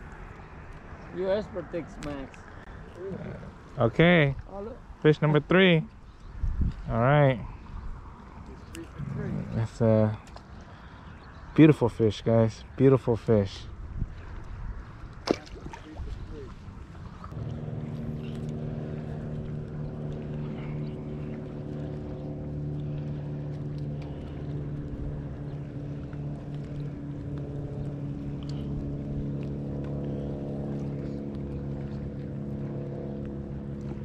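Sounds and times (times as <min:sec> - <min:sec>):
motorboat engine running: 0:12.8 - 0:34.0.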